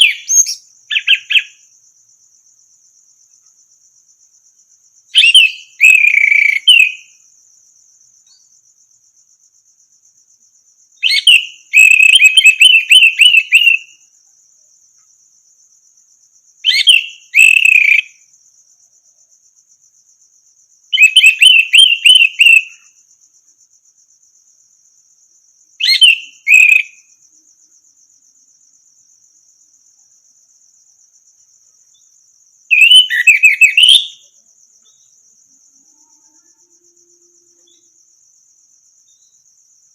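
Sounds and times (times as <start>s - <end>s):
high insect trill: 0.0s - 39.9s
thrush singing whistled phrases: 5.2s - 7.0s, 11.0s - 13.9s, 16.7s - 18.1s, 21.0s - 22.7s, 25.8s - 27.0s, 32.7s - 34.2s.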